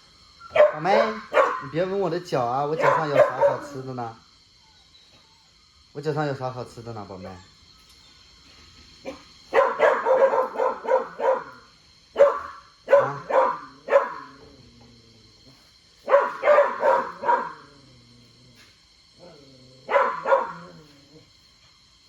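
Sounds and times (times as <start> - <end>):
dog barking: 0.4 - 1.9, 2.7 - 3.9, 9.1 - 14.5, 16.0 - 17.8, 19.9 - 21.0.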